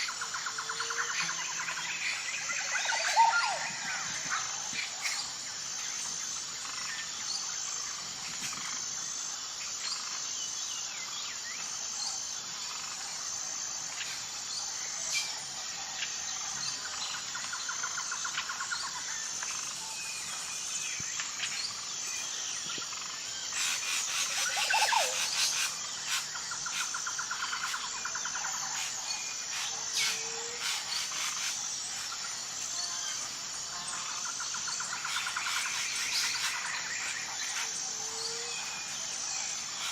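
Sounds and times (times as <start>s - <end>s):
high insect chirp: 0.0s - 39.9s
wild birds calling and singing: 0.0s - 39.9s.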